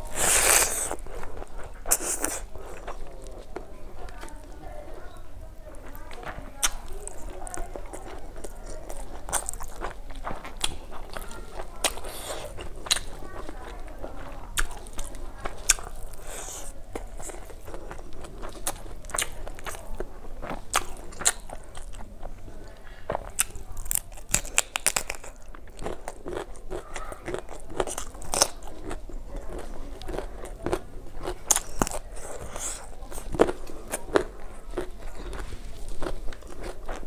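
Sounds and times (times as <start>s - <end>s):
person chewing food: 0.0s - 5.2s, 5.8s - 37.0s
wet mouth clicks and crunches: 0.1s - 3.0s, 6.6s - 13.6s, 23.1s - 37.0s.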